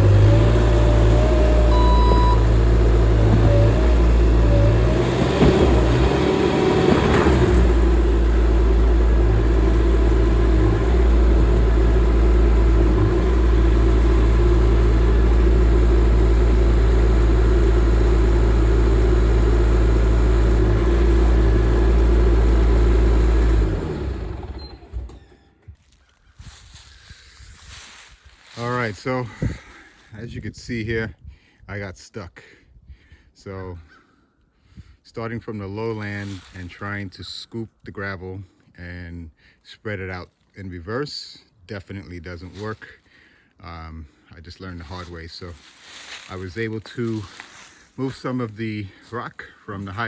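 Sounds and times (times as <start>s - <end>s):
skid steer engine running: 0.0s - 25.7s.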